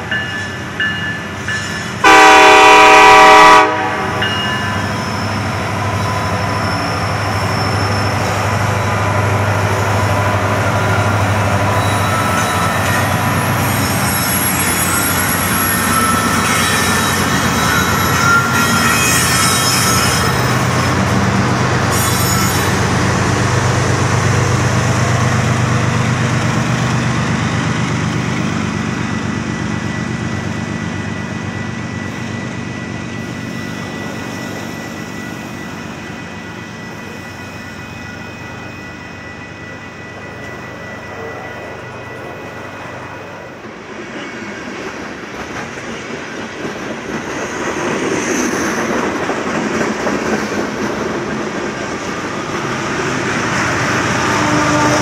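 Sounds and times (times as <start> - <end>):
diesel locomotive engines droning: 0.0 - 55.0
wheel squeal: 4.6 - 8.6, 10.0 - 20.9, 21.9 - 22.9
train wheel rumble: 39.2 - 55.0.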